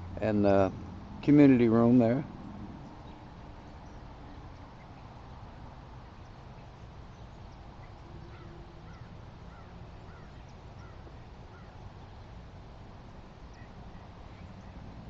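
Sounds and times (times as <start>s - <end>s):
low steady rumble: 0.0s - 15.0s
faint bird chirps: 6.0s - 12.3s, 13.4s - 14.9s.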